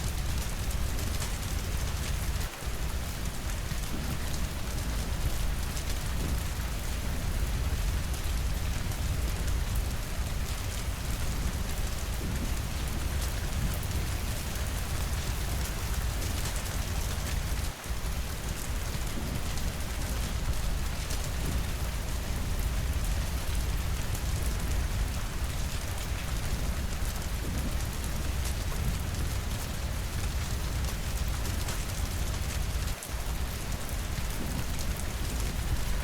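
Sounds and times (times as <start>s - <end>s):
rain against windows: 0.0s - 36.0s.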